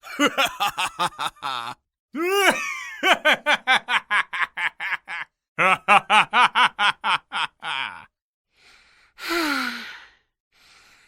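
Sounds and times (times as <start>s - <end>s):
person laughing: 0.0s - 8.1s
long sigh: 2.2s - 2.6s, 8.6s - 11.0s
breath in: 8.5s - 11.0s.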